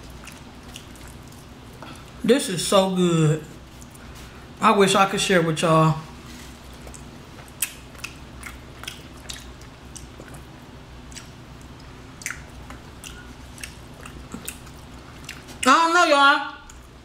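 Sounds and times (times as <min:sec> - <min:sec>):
chewing chicken wings: 0:00.0 - 0:02.2, 0:06.5 - 0:15.7
low steady hum: 0:00.0 - 0:17.0
wet mouth smacking clicks: 0:06.8 - 0:10.4, 0:11.1 - 0:14.7.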